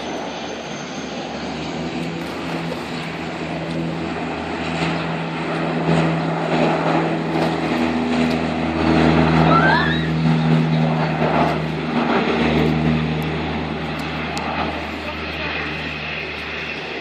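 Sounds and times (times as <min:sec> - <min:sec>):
propeller engines droning: 0:00.0 - 0:17.0.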